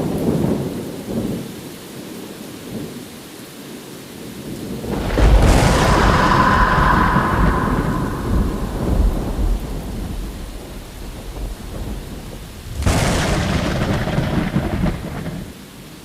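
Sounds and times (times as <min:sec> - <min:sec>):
steady rain: 0:00.0 - 0:16.0
thunder rumbling: 0:04.5 - 0:15.7
sharp thunderclap: 0:04.6 - 0:15.6.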